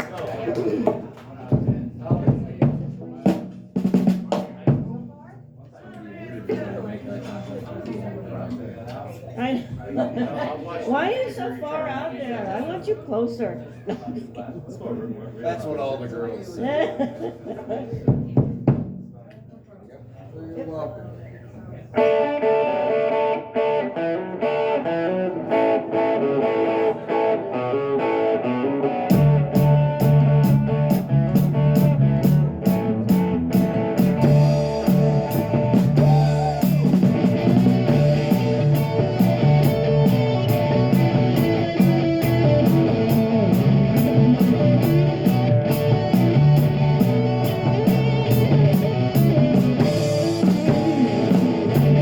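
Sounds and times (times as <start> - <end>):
drums: 0.0 - 6.6, 16.7 - 20.2, 22.0 - 52.0
bass guitar: 22.0 - 52.0
electric guitar riff: 22.0 - 52.0.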